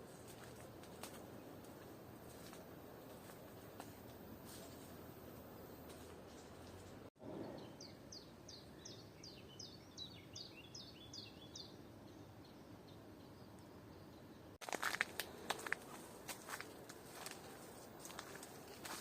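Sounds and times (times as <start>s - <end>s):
footsteps crunching on forest floor: 0.0s - 7.1s, 14.6s - 19.0s
forest ambience hiss: 0.0s - 7.1s, 14.6s - 19.0s
songbird chirping: 0.0s - 19.0s.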